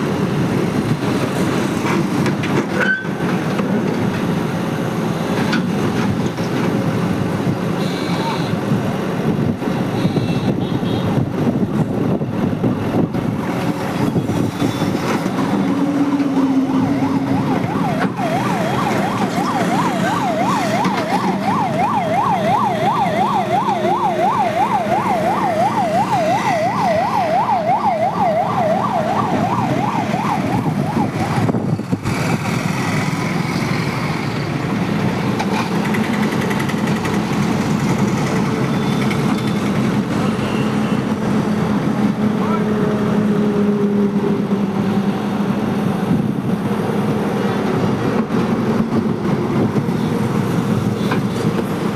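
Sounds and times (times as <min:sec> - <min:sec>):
heavy machinery engine droning: 0:12.0 - 0:51.9
siren warbling: 0:15.4 - 0:31.6.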